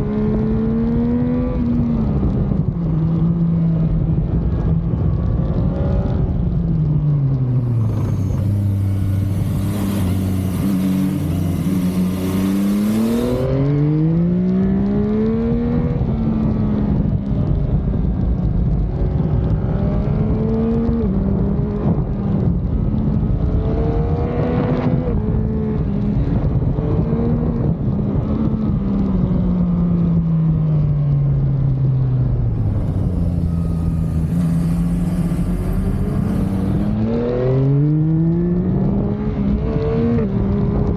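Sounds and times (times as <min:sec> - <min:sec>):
wind noise on microphone: 0:00.0 - 0:40.9
motorcycle engine revving: 0:07.4 - 0:16.3, 0:32.0 - 0:40.9.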